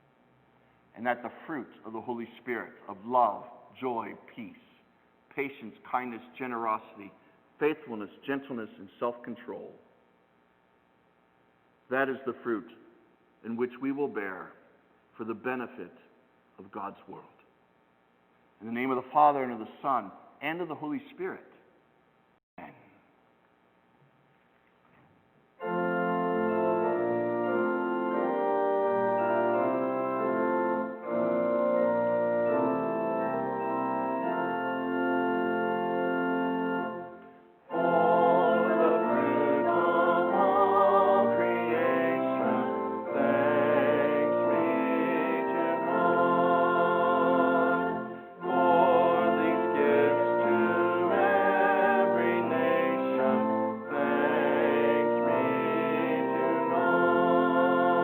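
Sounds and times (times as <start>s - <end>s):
organ playing held chords: 25.6s - 58.0s
person singing with vibrato: 37.7s - 58.0s.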